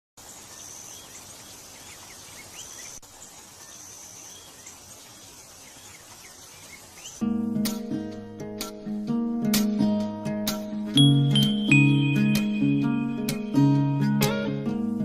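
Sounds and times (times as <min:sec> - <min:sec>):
insects chirping: 0:00.2 - 0:07.2
background hiss: 0:00.2 - 0:08.3
bird chirps: 0:00.3 - 0:07.2.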